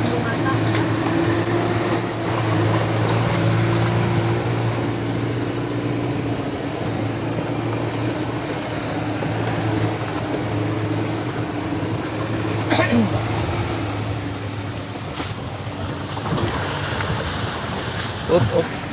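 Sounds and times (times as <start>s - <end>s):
vehicle engine running: 0.0s - 18.9s.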